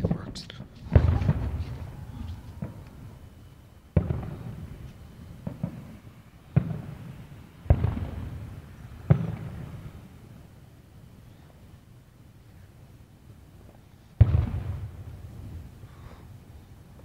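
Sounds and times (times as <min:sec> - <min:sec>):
fireworks bangs with echo: 0:00.0 - 0:10.2, 0:14.2 - 0:16.0.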